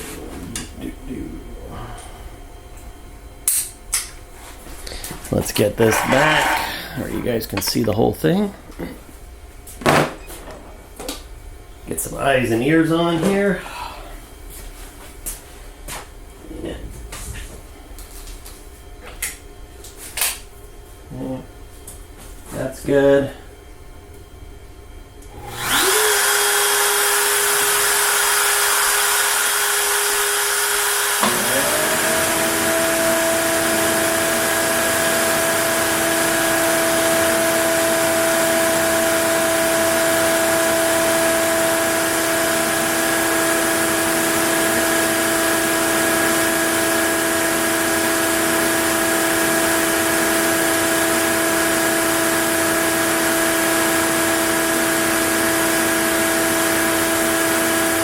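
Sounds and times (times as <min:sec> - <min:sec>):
shop vacuum motor whine and hiss: 0:04.8 - 0:08.9, 0:25.2 - 0:58.0
cnc router spinning whine: 0:05.8 - 0:08.5, 0:25.4 - 0:58.0.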